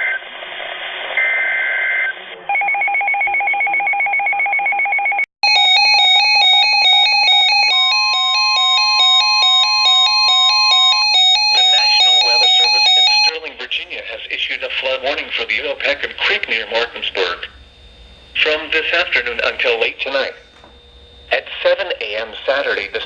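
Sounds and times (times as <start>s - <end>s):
steady electronic tone: 11.4s - 23.0s
warbling two-tone data header: 11.4s - 23.0s
stepping electronic tones: 14.8s - 23.0s.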